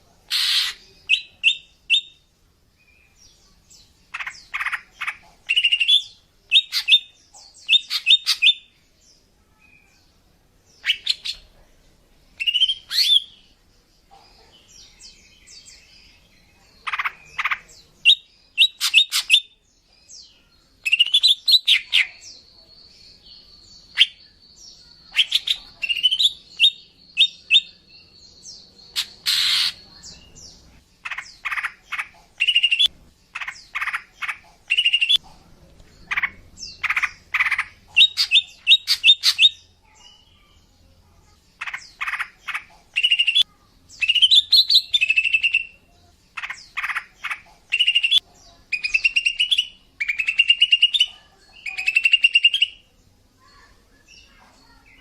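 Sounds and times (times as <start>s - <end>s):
bird chirping and squawking: 0.3s - 2.1s, 4.1s - 8.6s, 12.4s - 13.3s, 16.8s - 19.5s, 28.9s - 29.9s, 31.0s - 35.2s, 36.1s - 39.7s, 41.6s - 43.4s, 46.4s - 48.2s.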